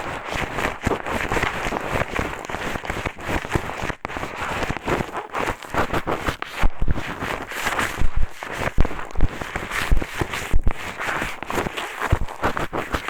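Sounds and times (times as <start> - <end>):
scraping in microphone ear: 0.0 - 13.0.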